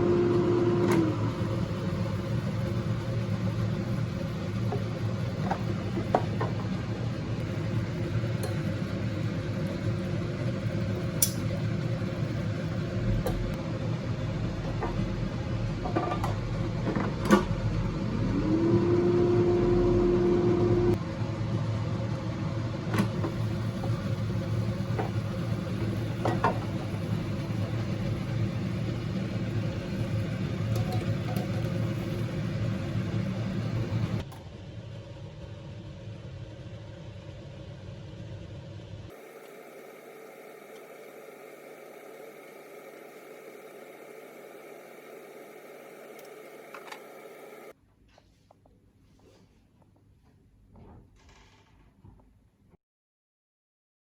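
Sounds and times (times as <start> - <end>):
low hum: 1.1 - 39.1.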